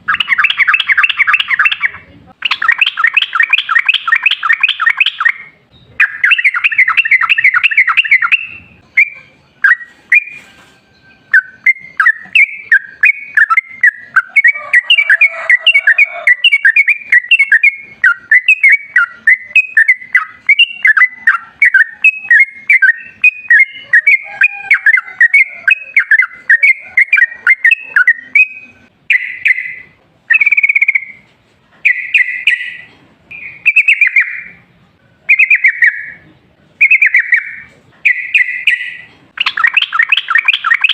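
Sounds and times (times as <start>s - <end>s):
bird singing bubbly warbled notes: 0.0s - 10.4s, 11.2s - 31.2s, 31.9s - 34.6s, 35.3s - 40.9s.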